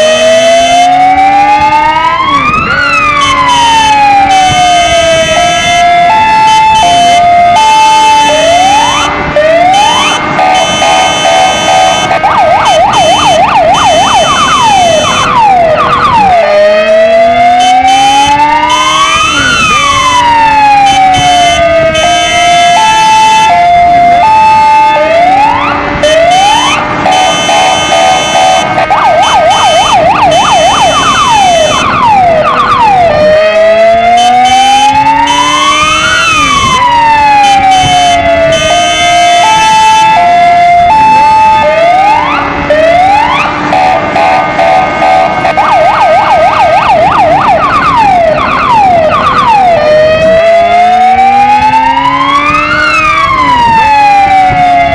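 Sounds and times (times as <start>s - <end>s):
electronic siren cycling tones: 0.0s - 54.9s
low steady motorcycle tone: 4.4s - 33.4s.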